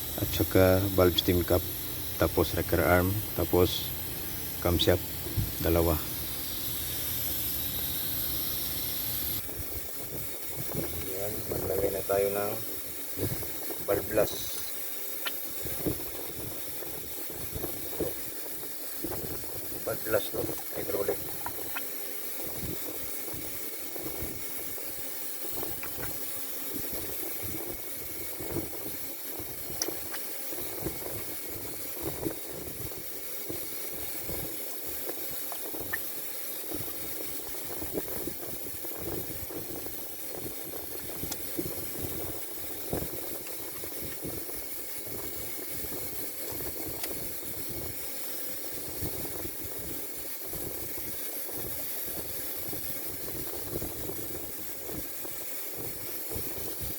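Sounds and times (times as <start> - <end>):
steady background hiss: 0.0 - 9.4, 10.0 - 24.4.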